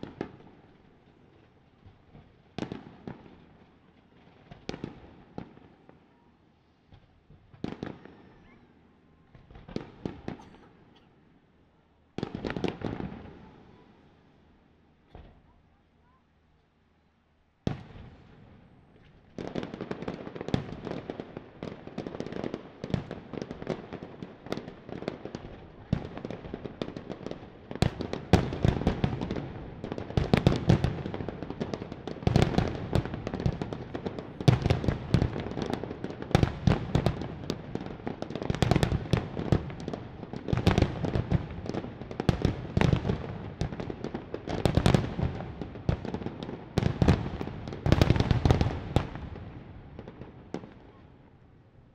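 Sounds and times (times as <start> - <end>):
fireworks bangs and crackles: 0.0 - 6.1, 6.8 - 11.0, 12.1 - 13.9, 15.1 - 15.6, 17.6 - 51.3.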